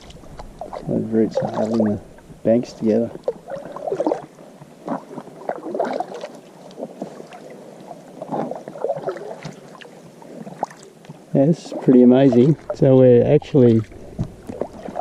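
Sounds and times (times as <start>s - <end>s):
paddle splashing in water: 0.0s - 15.0s.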